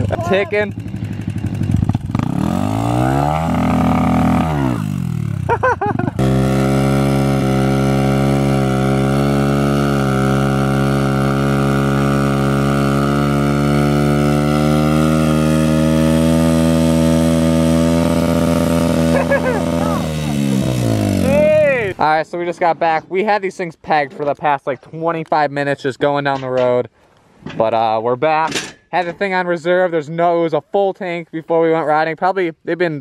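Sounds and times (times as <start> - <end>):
pit bike engines revving: 0.0 - 22.8.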